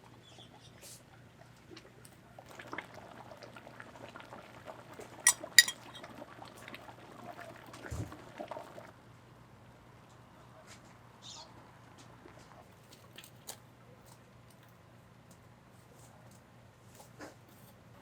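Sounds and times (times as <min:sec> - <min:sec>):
liquid pouring: 0:05.3 - 0:06.0
utensils clinking against dishes: 0:05.3 - 0:06.0.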